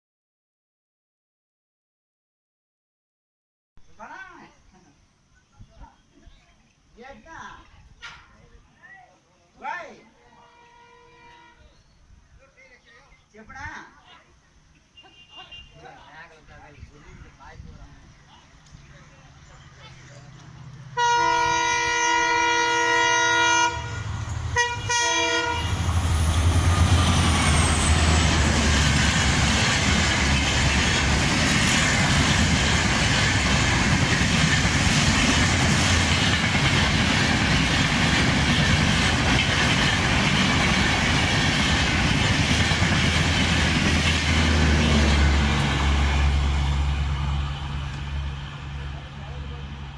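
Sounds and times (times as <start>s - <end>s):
locomotive horn blasts: 10.4s - 11.7s, 21.0s - 25.9s
train running by: 16.0s - 49.9s.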